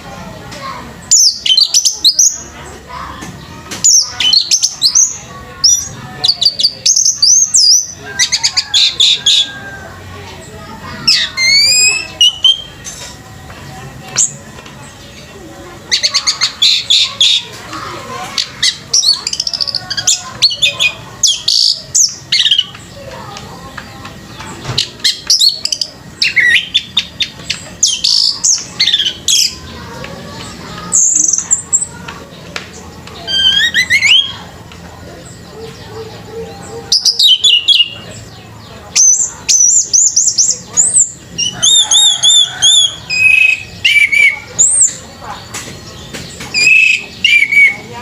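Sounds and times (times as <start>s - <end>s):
thrush singing: 0.0s - 48.0s
thrush singing whistled notes: 11.0s - 12.8s, 33.2s - 34.6s, 39.0s - 45.2s, 45.9s - 47.9s.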